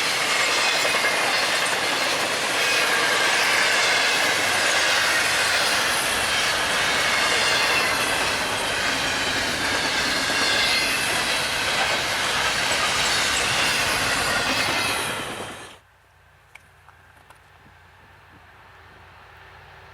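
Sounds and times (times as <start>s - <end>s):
freight train passing: 0.0s - 15.9s, 17.8s - 19.9s
wheel squeal: 0.3s - 15.7s.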